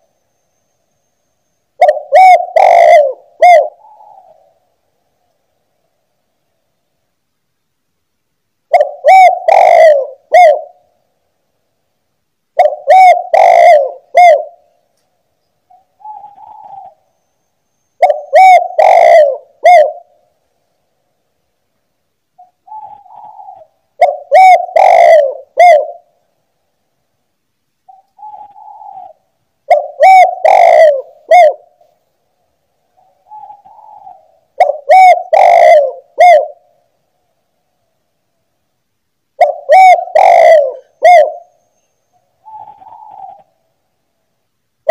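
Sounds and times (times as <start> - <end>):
dove cooing: 1.8 - 4.6, 8.7 - 11.0, 12.6 - 14.8, 15.7 - 17.1, 18.0 - 20.3, 22.4 - 26.2, 27.9 - 31.8, 33.0 - 36.9, 39.4 - 43.7.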